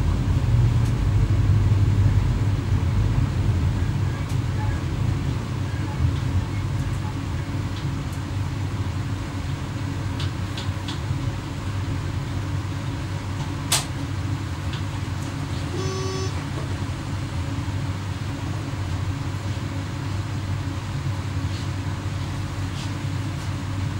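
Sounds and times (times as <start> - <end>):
electric train rumbling: 0.0 - 23.9
faint pitched beep: 15.8 - 16.4.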